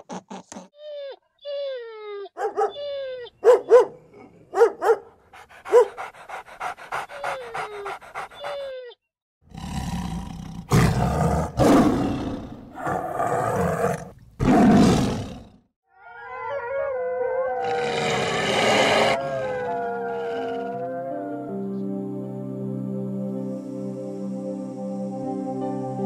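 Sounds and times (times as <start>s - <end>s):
wavering animal call: 15.9s - 21.5s.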